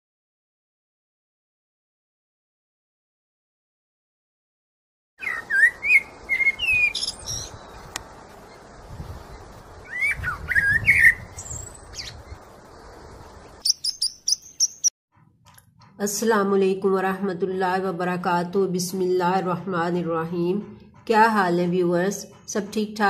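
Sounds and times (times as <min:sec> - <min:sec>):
bird chirps: 0:05.2 - 0:14.9.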